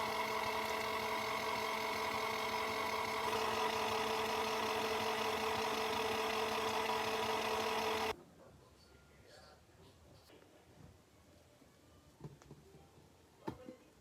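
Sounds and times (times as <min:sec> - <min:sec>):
washing machine motor humming: 0:00.0 - 0:08.1.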